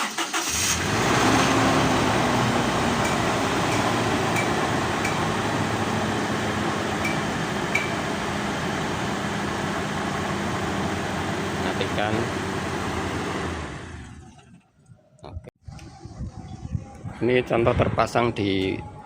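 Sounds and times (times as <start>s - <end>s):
car engine idling: 1.5s - 14.5s.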